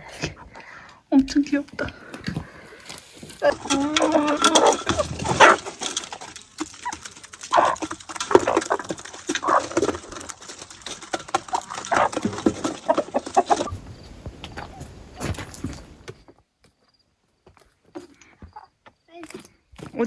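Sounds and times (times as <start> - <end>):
rustling: 2.2 - 13.8
farm animals calling: 2.5 - 13.7.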